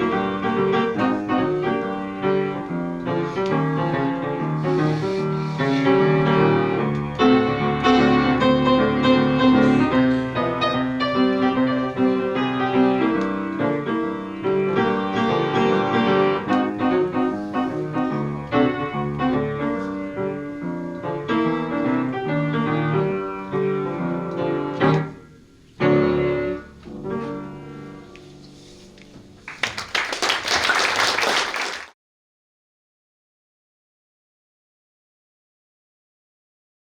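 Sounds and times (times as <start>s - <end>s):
solo piano: 0.0s - 28.5s
applause: 29.5s - 32.0s.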